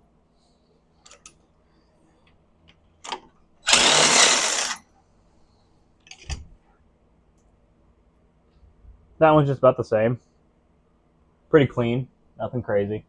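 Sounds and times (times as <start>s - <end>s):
tool whirring burst: 3.6s - 4.8s.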